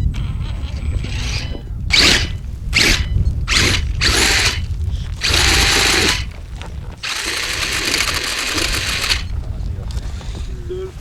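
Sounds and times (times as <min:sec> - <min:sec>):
rc car motor whining: 0:00.0 - 0:09.3
wheels spinning: 0:00.0 - 0:09.4.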